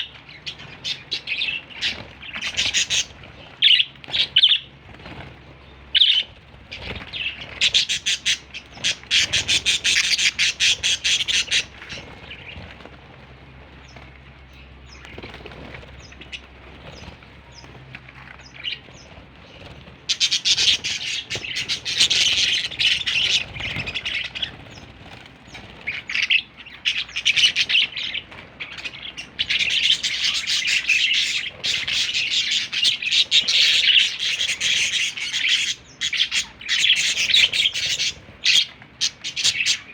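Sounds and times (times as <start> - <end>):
budgerigar chirping and chattering: 6.8 - 12.0, 20.1 - 24.6, 28.8 - 39.9.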